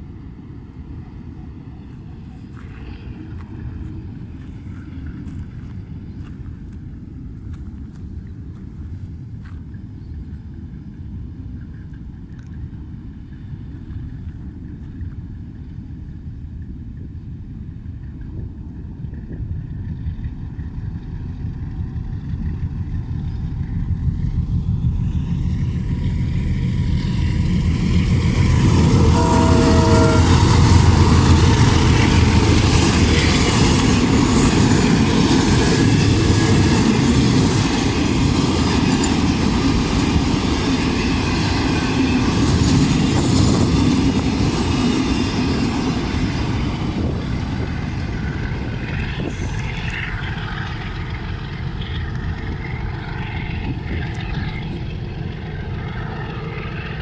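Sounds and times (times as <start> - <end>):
train wheels on rails: 19.1 - 57.0
train horn: 25.6 - 35.6.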